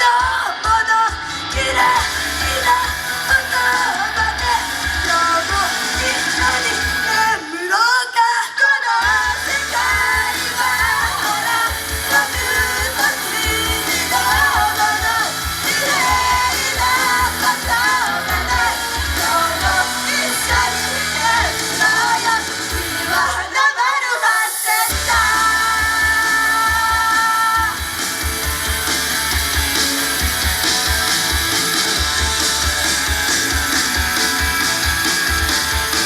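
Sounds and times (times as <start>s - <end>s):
person singing: 0.0s - 27.9s
pop song through loudspeakers: 0.0s - 36.0s.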